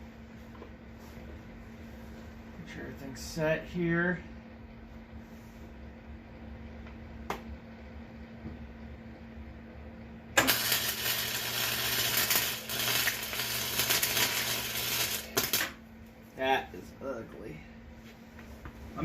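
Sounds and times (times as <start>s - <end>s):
low electrical hum: 0.0s - 19.0s
arc welder crackling hiss: 10.4s - 15.9s.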